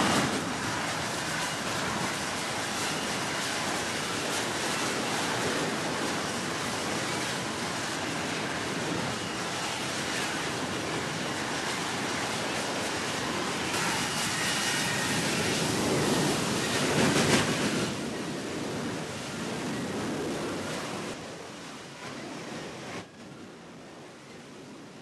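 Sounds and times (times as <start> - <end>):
jet aircraft engine with high whine: 0.0 - 25.0
wind: 0.0 - 25.0.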